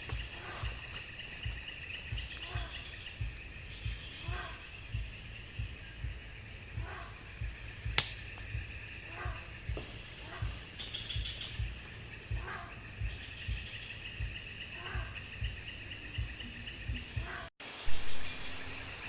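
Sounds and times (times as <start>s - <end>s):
high repeating chirp: 0.0s - 17.5s
low irregular thumps: 0.0s - 18.1s
insect chorus: 0.0s - 19.0s
sharp click: 8.0s - 8.5s.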